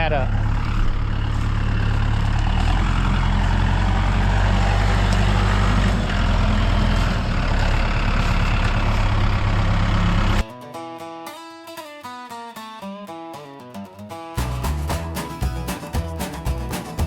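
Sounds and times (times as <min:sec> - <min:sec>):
heavy equipment engine running: 0:00.0 - 0:10.4.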